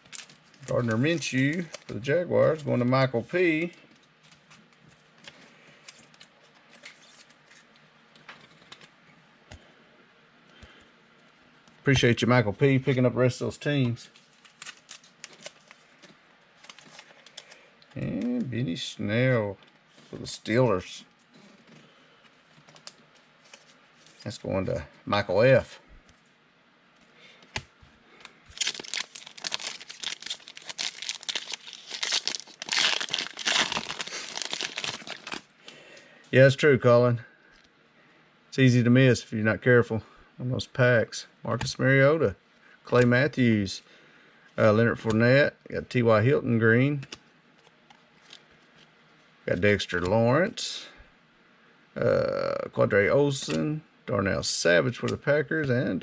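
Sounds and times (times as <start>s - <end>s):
foil wrapper crinkling and tearing: 0.0s - 3.8s, 14.2s - 15.9s, 28.5s - 35.5s
cards clicking and rustling: 27.4s - 35.4s.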